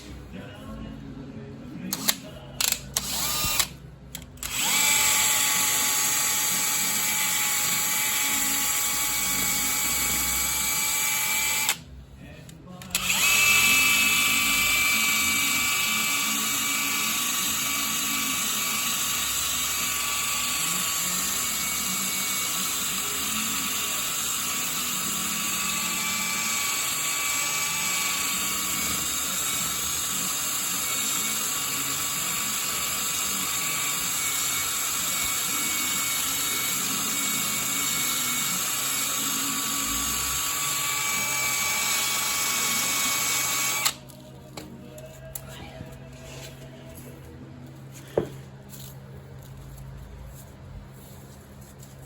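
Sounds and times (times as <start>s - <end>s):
power tool high whine: 3.0s - 3.7s, 4.4s - 11.8s, 13.0s - 44.0s.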